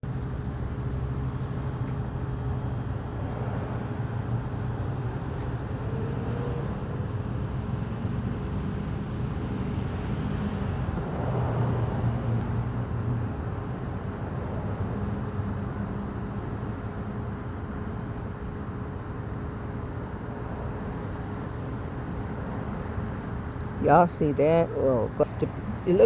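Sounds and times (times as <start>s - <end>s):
vehicle engine running: 0.0s - 13.7s.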